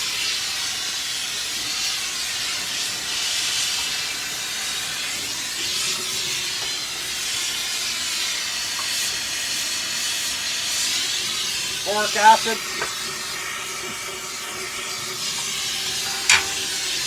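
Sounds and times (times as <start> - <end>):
torch flame howling: 10.0 - 17.0.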